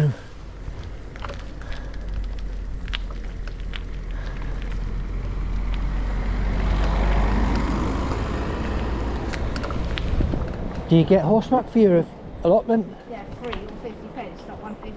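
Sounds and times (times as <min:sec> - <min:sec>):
car passing: 0:00.0 - 0:14.9
wind rumble on microphone: 0:00.5 - 0:11.0.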